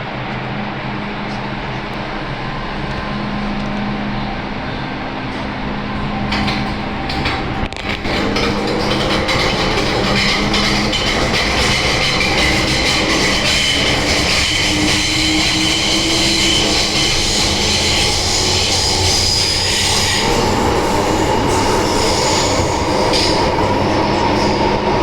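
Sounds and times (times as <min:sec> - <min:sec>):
train wheels rumbling on rails: 0:00.0 - 0:25.0
high wheel squeal: 0:06.0 - 0:25.0.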